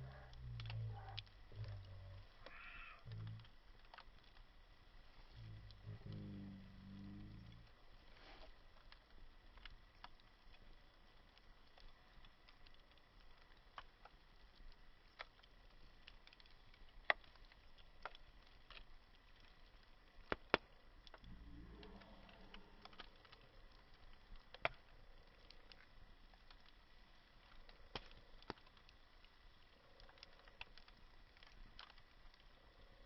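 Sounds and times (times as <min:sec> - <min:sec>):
campfire crackling: 0:00.0 - 0:33.0
faint steady hiss: 0:00.0 - 0:33.0.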